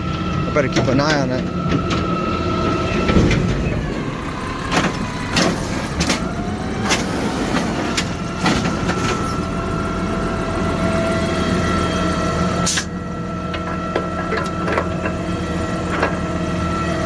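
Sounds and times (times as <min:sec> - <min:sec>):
garbage truck engine running: 0:00.0 - 0:17.0.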